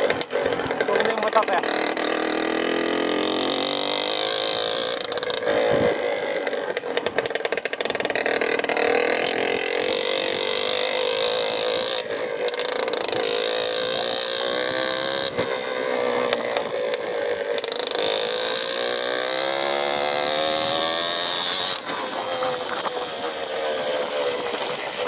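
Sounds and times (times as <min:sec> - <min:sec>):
rapid clatter: 0:00.0 - 0:15.6
motorcycle engine running: 0:00.0 - 0:25.0.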